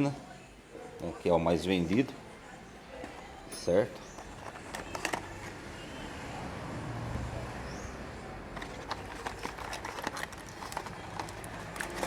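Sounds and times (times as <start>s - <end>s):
workshop background noise: 0.0s - 6.2s, 8.2s - 12.0s
cardboard box being opened: 8.6s - 12.0s.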